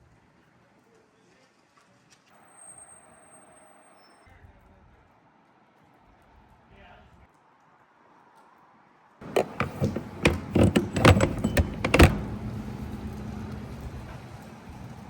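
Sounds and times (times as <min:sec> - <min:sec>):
fuel nozzle clicks and clunks: 0:09.2 - 0:14.2
fuel pump humming: 0:09.2 - 0:15.0.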